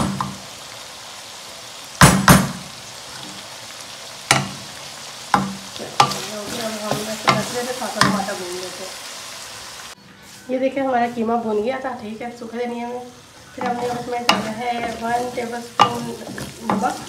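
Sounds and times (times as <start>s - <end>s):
meat sizzling in oil: 0.0s - 17.0s.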